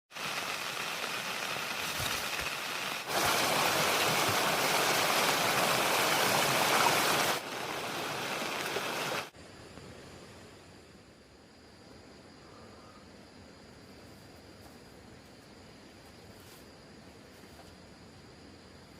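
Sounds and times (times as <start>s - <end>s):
rushing water: 0.1s - 9.4s.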